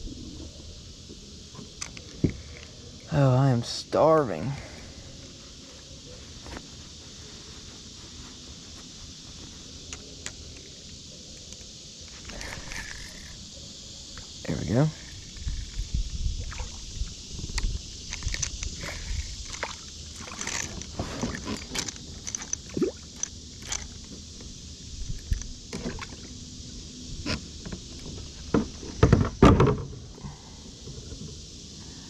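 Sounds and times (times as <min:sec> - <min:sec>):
water sloshing: 0:16.4 - 0:17.2, 0:18.1 - 0:24.1
knocks and clatter in kayak: 0:16.4 - 0:24.5, 0:25.2 - 0:26.3, 0:27.2 - 0:31.5.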